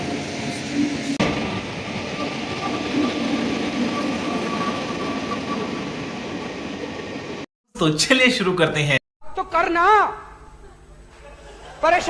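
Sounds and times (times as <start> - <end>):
train rumble and rush: 0.0 - 7.5.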